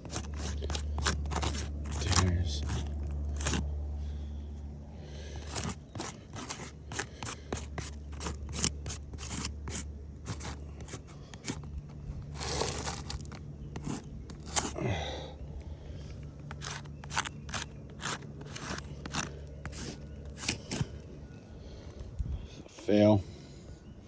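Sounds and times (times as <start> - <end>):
roof shingles crackling and scraping: 0.0 - 3.7, 5.4 - 14.8, 16.4 - 21.2.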